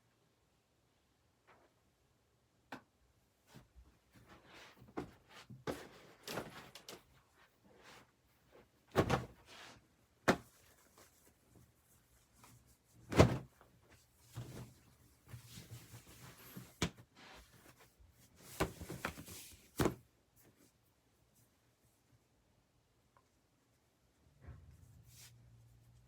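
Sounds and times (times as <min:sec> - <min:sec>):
clothes rustling: 0:03.5 - 0:20.6.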